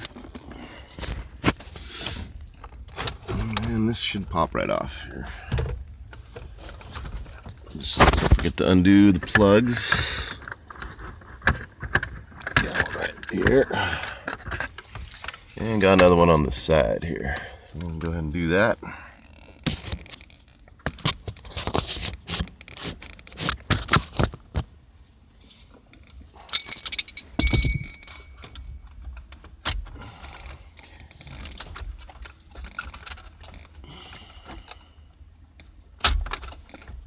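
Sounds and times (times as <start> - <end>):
sharp metallic jingles: 26.4 - 28.5.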